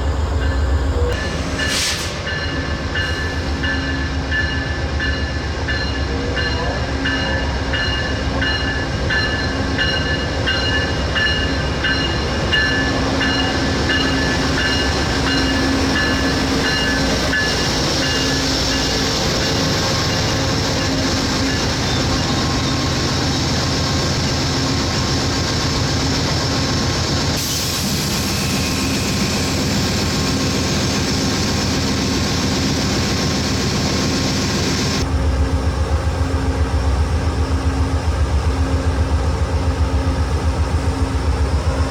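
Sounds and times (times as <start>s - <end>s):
train rail cars clattering: 0.0s - 35.3s.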